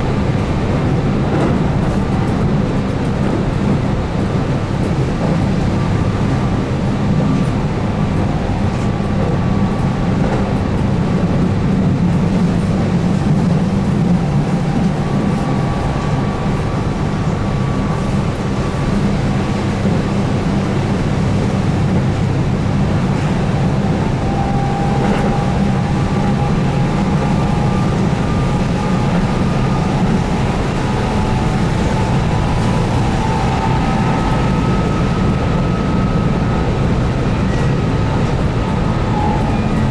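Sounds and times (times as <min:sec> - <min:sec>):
train wheels rumbling on rail: 0:00.0 - 0:39.9
traction motor whine: 0:12.5 - 0:39.9.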